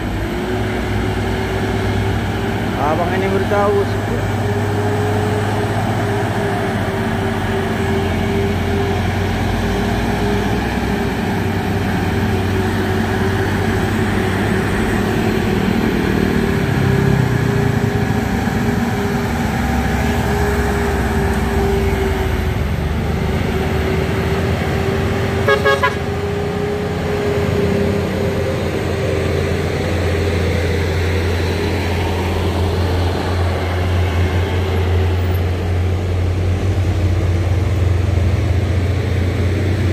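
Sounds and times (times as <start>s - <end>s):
heavy truck engines whining: 0.0s - 39.9s
truck horn toots: 25.4s - 26.2s.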